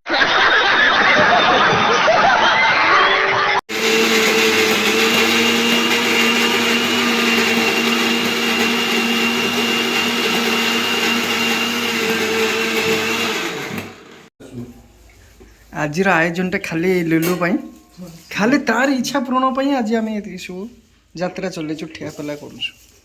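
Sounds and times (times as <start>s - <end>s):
mixer grinder motor running: 3.7s - 14.3s.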